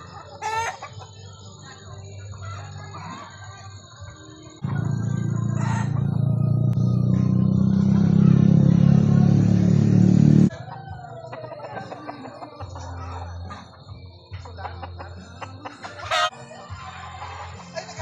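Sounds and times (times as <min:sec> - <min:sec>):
engine running: 0:04.6 - 0:10.5.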